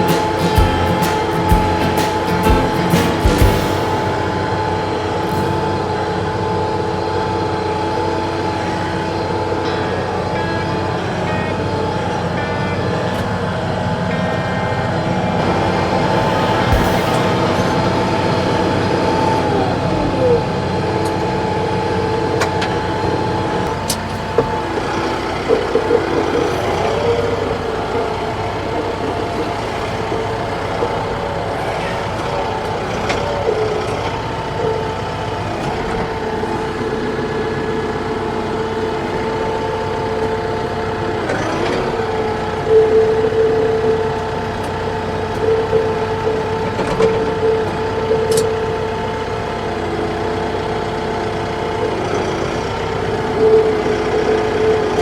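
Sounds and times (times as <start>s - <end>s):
steady whine: 0.0s - 12.8s, 14.2s - 22.1s
tractor diesel engine running: 0.0s - 55.0s.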